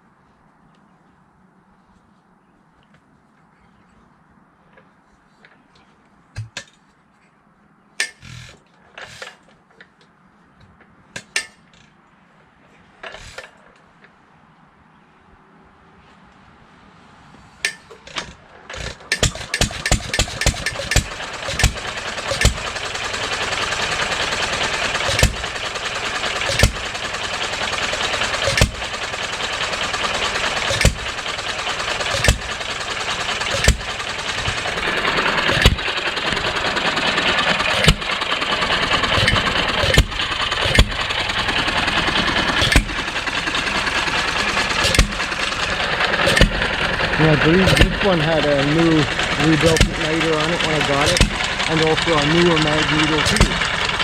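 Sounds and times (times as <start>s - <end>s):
engine clatter: 17.6s - 54.0s
stationary engine firing bangs: 25.0s - 27.0s, 30.0s - 36.5s, 38.9s - 54.0s.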